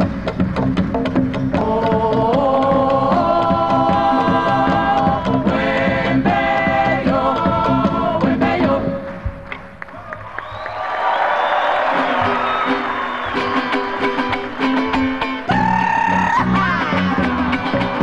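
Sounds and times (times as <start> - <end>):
folk orchestra with harmony voices: 1.5 - 9.4.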